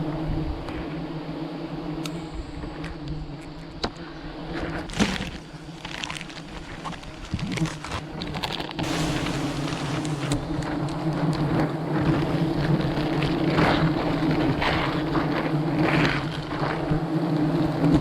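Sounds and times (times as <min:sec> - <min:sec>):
honeybee swarm droning: 0:04.1 - 0:10.9.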